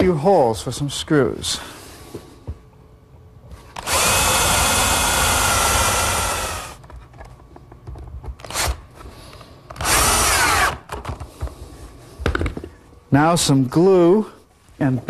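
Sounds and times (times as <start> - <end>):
electric drill boring wood: 3.8 - 6.8, 9.8 - 10.8.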